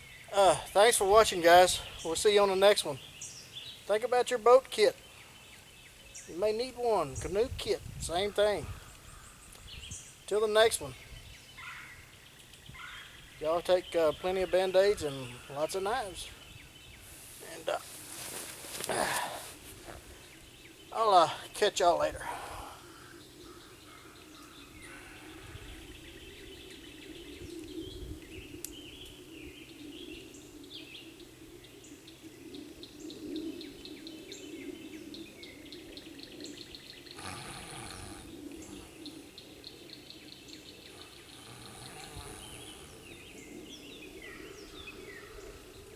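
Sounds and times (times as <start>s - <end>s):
birds chirping trills: 0.0s - 45.9s
low background noise: 0.0s - 45.9s.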